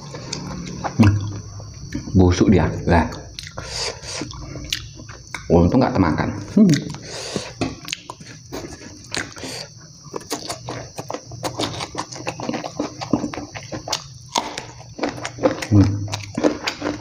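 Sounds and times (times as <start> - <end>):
person chewing with wet smacks: 6.7 - 17.0.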